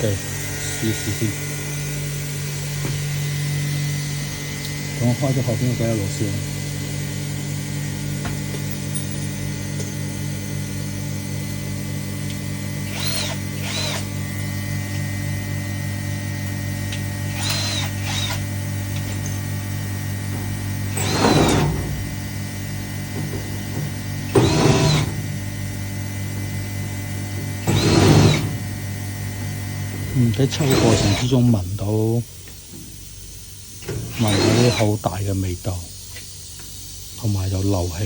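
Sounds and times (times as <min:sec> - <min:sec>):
pump motor low hum: 0:00.0 - 0:31.4
short whirring bursts: 0:12.8 - 0:14.2, 0:17.3 - 0:18.5, 0:20.9 - 0:22.2, 0:27.6 - 0:28.7, 0:30.2 - 0:31.4, 0:34.1 - 0:35.0.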